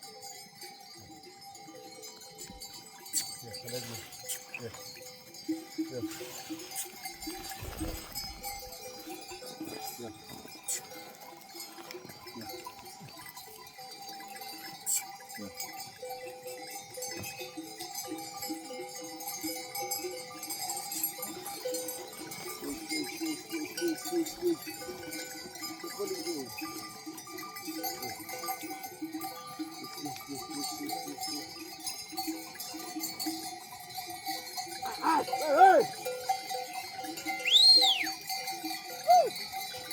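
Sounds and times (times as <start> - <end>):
sheep bells clanking: 0.0 - 39.9
sheep bleating: 34.8 - 35.9.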